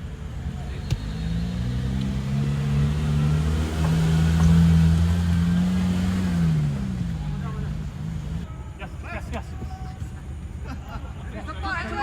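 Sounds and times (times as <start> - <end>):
motor engine humming: 0.0 - 8.4.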